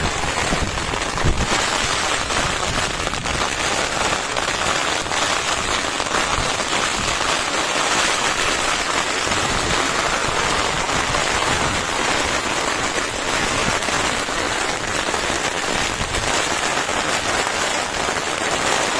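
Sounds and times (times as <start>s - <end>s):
heavy rain falling: 0.0s - 18.9s.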